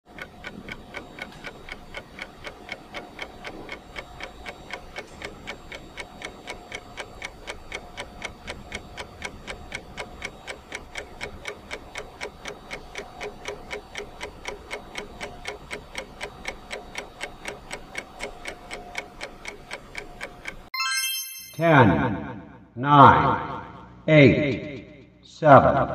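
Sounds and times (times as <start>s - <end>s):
steady clock-like ticking: 0.1s - 20.7s.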